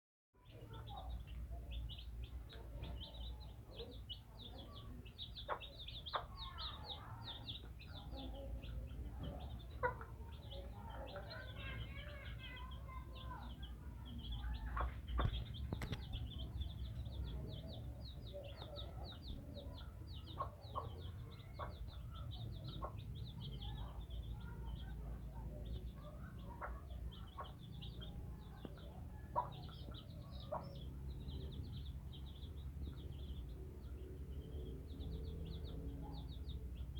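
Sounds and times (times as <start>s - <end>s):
chick peeping: 0.4s - 36.9s
chick pecking taps: 14.6s - 16.3s.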